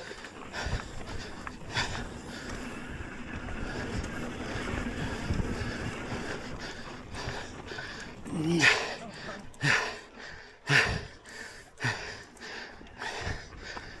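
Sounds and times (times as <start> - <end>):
bike rolling on dirt trail: 0.0 - 14.0
wind noise on microphone: 0.4 - 8.2.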